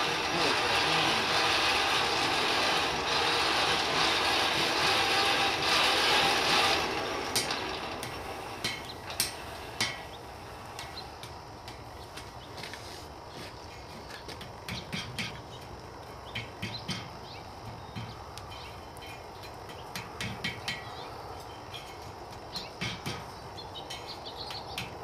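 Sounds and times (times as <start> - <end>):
forge air blast rushing hiss: 0.0 - 11.1.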